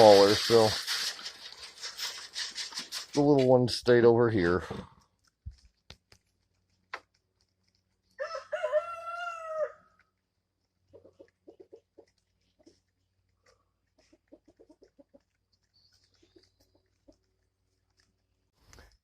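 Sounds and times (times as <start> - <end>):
rooster crowing: 8.2 - 9.9
chickens clucking: 10.8 - 17.4.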